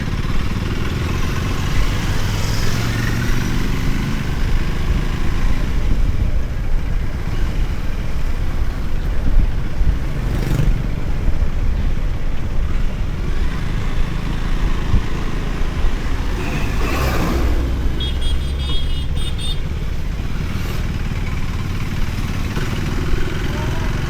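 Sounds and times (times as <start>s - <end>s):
motorcycle engine running: 0.0s - 24.0s
wind noise on microphone: 3.4s - 18.0s
vehicle passing: 14.6s - 18.6s.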